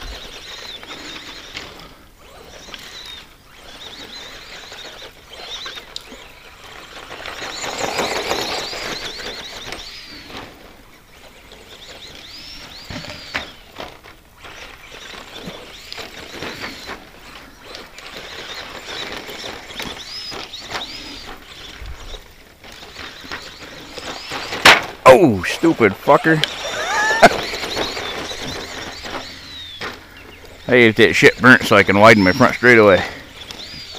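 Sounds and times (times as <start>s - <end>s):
electric motor whining: 0.0s - 24.6s, 25.6s - 33.9s
tyres hissing over dirt: 22.7s - 33.7s.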